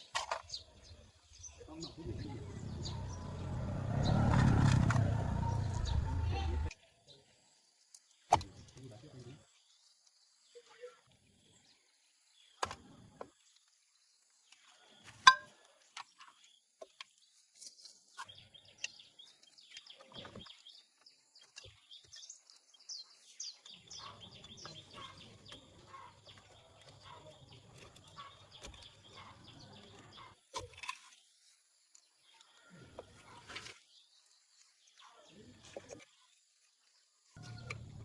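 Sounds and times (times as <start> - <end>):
birds chirping: 0.0 - 6.7, 18.2 - 30.5, 37.4 - 38.0
faint low hum: 1.6 - 6.7, 37.4 - 38.0.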